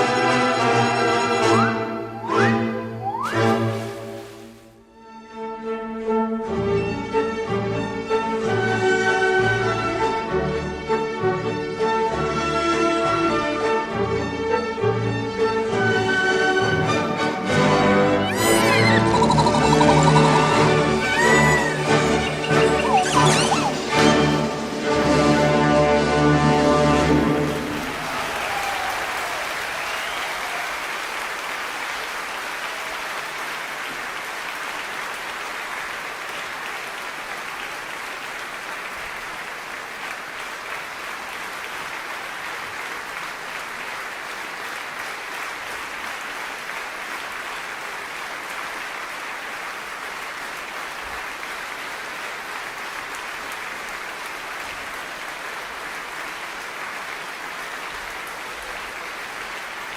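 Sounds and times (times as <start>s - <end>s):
audience applauding: 18.2s - 25.6s, 27.0s - 59.9s.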